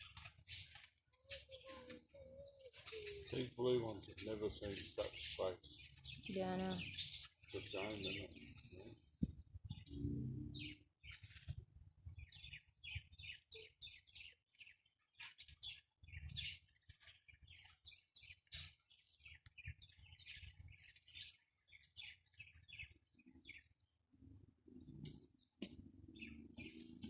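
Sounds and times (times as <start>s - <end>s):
parrots chirping and chattering: 0.0s - 11.5s, 12.2s - 23.7s, 26.1s - 27.0s.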